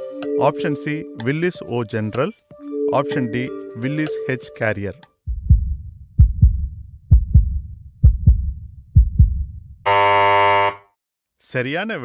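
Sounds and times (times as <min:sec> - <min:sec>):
heartbeat thumps: 0:05.3 - 0:09.8
loud buzzer tone: 0:09.9 - 0:11.0.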